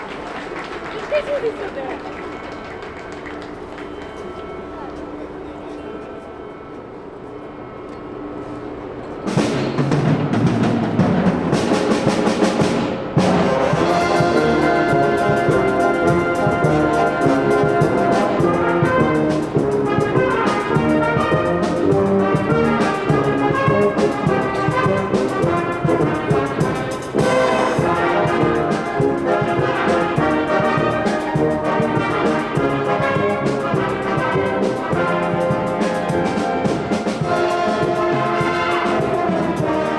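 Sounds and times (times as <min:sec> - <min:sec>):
brass band music: 0:09.3 - 0:39.9.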